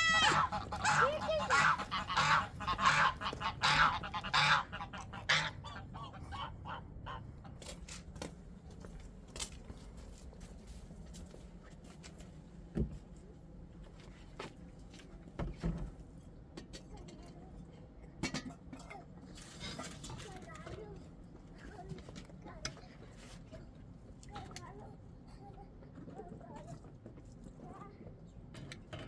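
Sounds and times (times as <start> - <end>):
rough bird calls: 0.0 - 5.9.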